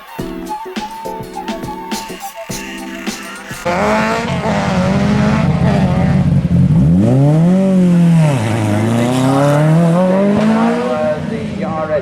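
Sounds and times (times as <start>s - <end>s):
rally car engine revving: 3.6s - 12.0s.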